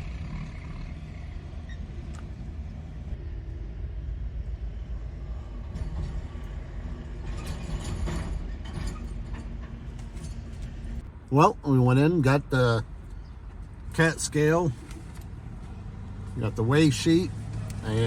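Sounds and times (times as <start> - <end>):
vehicle engine droning: 0.0 - 18.0.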